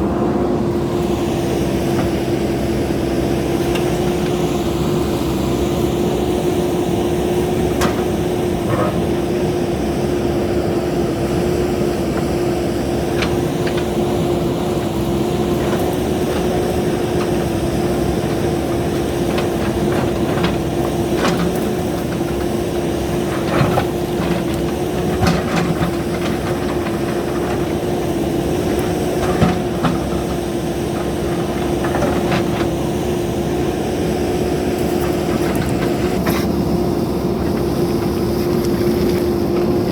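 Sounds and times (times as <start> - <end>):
diesel engine running: 0.0 - 39.9
knocks and clanks: 13.0 - 32.8.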